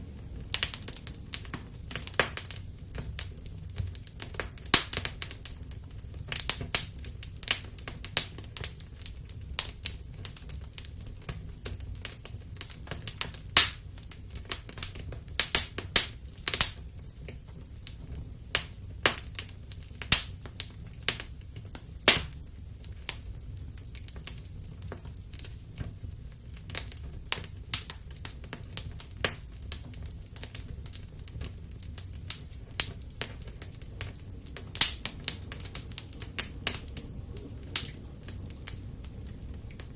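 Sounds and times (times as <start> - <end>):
low steady rumble: 0.0 - 12.0, 25.2 - 39.9
wood fire crackling: 0.0 - 39.9.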